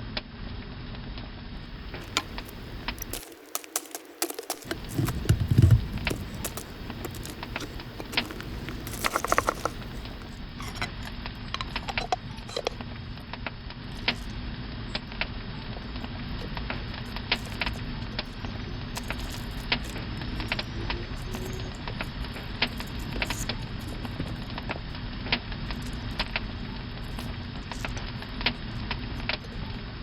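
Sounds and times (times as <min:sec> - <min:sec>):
campfire crackling and popping: 0:01.7 - 0:12.2.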